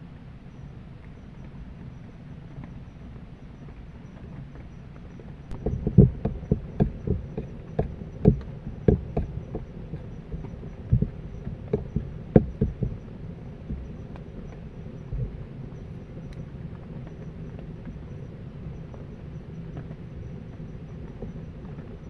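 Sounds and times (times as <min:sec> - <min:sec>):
dull thumps and knocks: 0:05.5 - 0:15.4.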